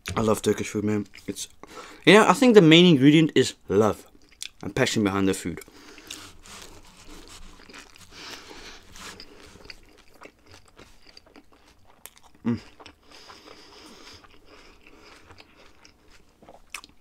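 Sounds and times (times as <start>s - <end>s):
chewing and biting flatbread: 5.6s - 17.0s.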